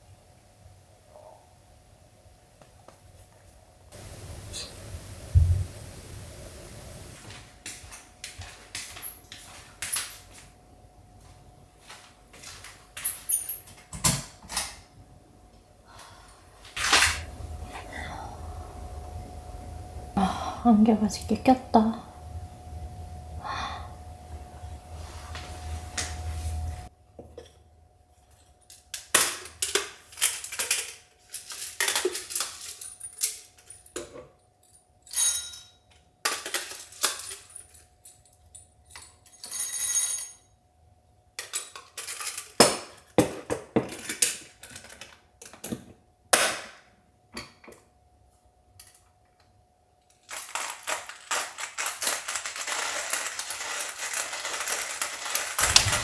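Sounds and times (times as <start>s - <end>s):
small hard objects clinking: 50.2s - 56.0s.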